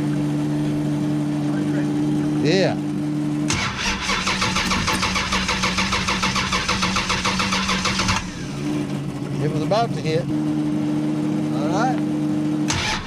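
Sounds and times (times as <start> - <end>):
engine starter cranking: 3.5 - 8.4, 12.7 - 13.0.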